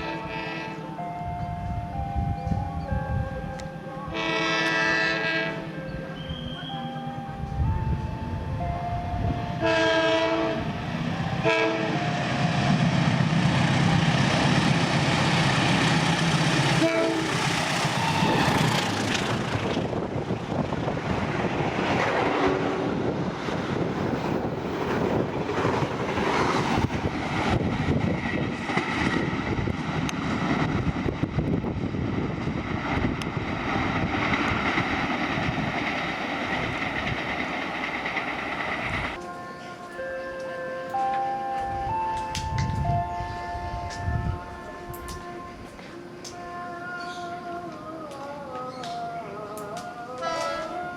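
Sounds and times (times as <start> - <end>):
locomotive horn blasts: 0.0 - 0.9, 4.1 - 6.8, 9.5 - 12.5, 16.7 - 18.5, 22.2 - 23.0, 50.2 - 50.8
locomotive engine droning: 0.0 - 50.9.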